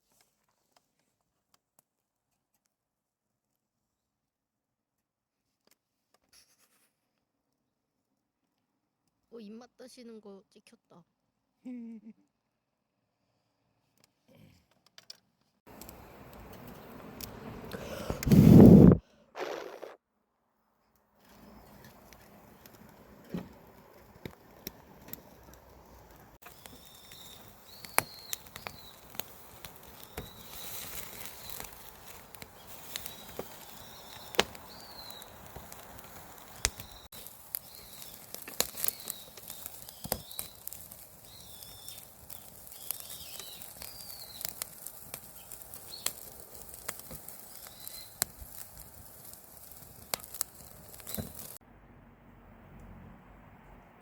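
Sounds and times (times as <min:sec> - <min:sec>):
wood fire crackling and popping: 0:15.0 - 0:19.0, 0:21.2 - 0:51.6
short high chirping calls: 0:26.5 - 0:29.1, 0:32.5 - 0:35.4, 0:41.2 - 0:44.6, 0:47.6 - 0:48.2.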